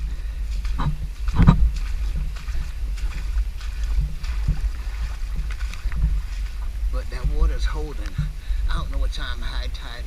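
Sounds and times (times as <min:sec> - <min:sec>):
boots wading through water: 0:00.0 - 0:10.0
wind rumble on microphone: 0:00.0 - 0:10.0.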